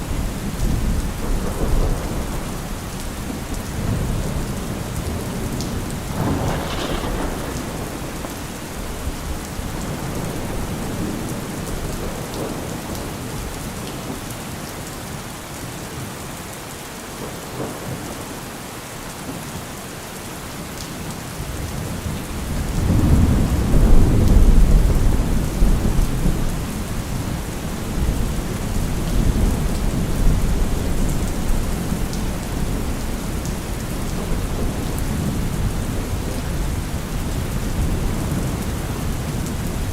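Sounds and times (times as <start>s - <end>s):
rolling thunder: 0.0s - 13.2s, 22.0s - 39.9s
steady rain: 0.0s - 39.9s.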